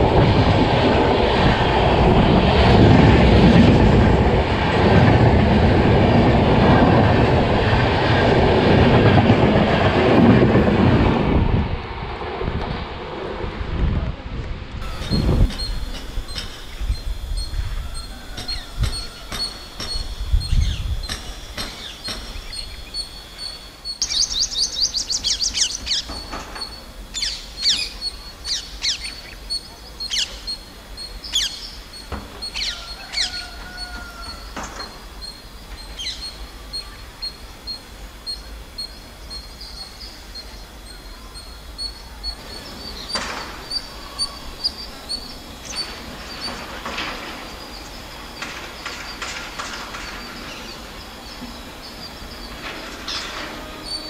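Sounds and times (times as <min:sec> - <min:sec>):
birds chirping: 0:14.8 - 0:54.0.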